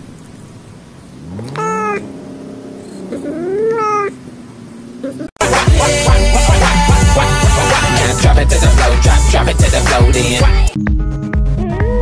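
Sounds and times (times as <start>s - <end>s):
cat meowing: 1.3s - 5.3s
loud music with a beat: 5.4s - 11.9s.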